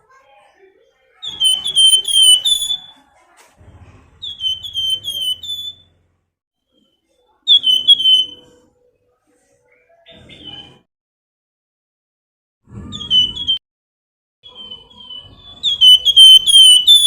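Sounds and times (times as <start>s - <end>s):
songbird whistling: 1.2s - 3.0s, 4.2s - 6.0s, 7.5s - 8.6s, 12.9s - 13.6s, 14.4s - 17.0s.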